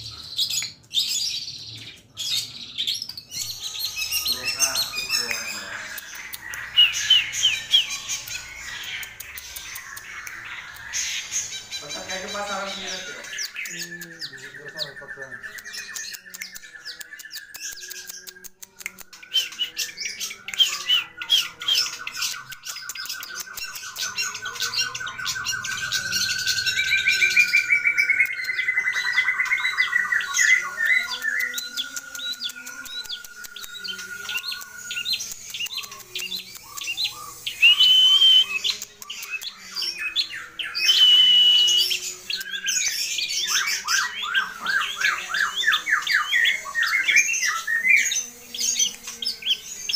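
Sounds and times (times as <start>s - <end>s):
bird singing harsh chatter and trills: 0.0s - 49.9s
clear held bird whistles: 37.5s - 38.7s, 40.8s - 42.0s.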